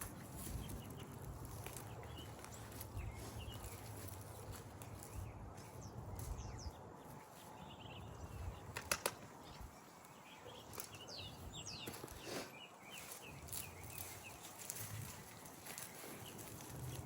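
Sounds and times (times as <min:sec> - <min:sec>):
small birds chirping: 0:00.0 - 0:17.0
sharp handling clicks: 0:08.7 - 0:09.3.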